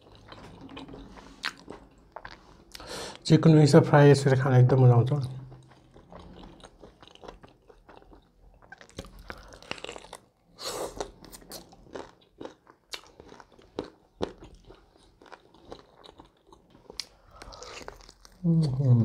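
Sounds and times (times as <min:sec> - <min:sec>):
person chewing: 0:00.0 - 0:03.2, 0:05.2 - 0:19.0.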